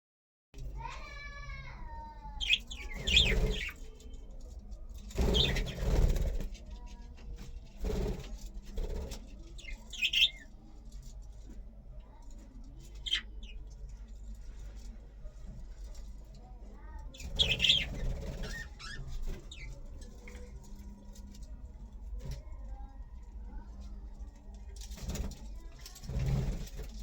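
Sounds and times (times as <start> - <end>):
budgerigars chirping: 2.4 - 3.8, 5.2 - 5.7, 9.6 - 10.4, 13.0 - 13.6, 17.2 - 19.0
wings flapping: 2.4 - 3.9, 5.0 - 10.3, 17.2 - 21.4, 24.7 - 27.0.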